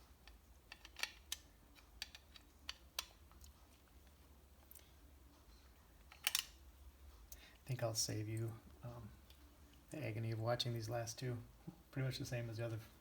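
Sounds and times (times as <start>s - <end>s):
hand tools clicking and tapping: 0.2s - 3.4s.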